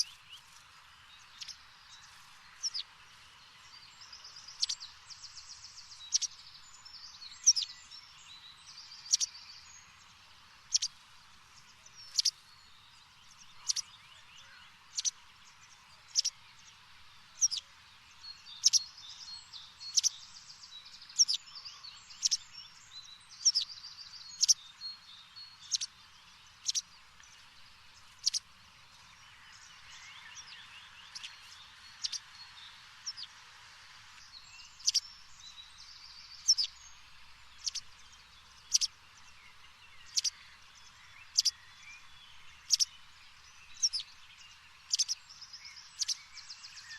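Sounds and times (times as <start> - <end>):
bird chirping: 0.0 - 33.4, 34.1 - 46.9
steady hiss: 25.7 - 46.9.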